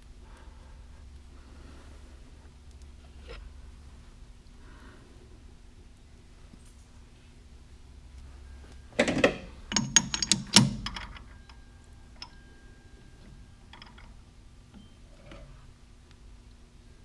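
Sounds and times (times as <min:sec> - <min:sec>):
metal clinks and clatter: 0:09.0 - 0:11.6, 0:13.6 - 0:14.2.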